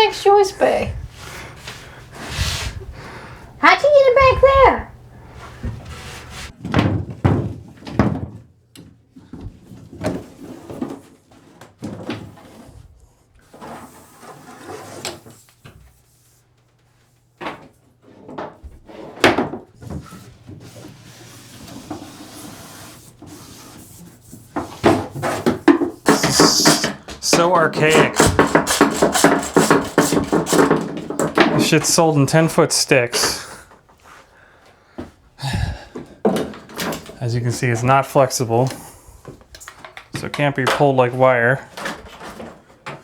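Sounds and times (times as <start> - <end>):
plastic pipe knocking and scraping: 5.4 - 8.4, 24.4 - 32.0.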